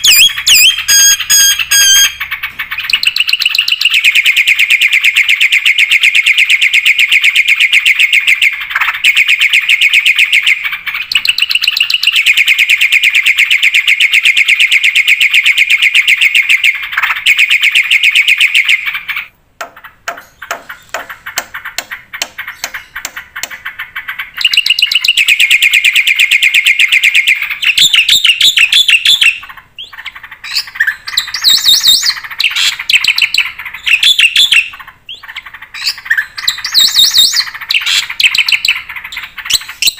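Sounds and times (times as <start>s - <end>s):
bird clicks: 19.6s - 23.6s.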